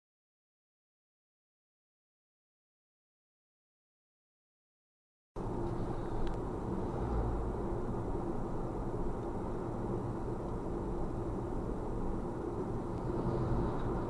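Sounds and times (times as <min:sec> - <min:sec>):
car engine rumble: 0:05.4 - 0:14.0
tyre road noise: 0:05.4 - 0:14.0.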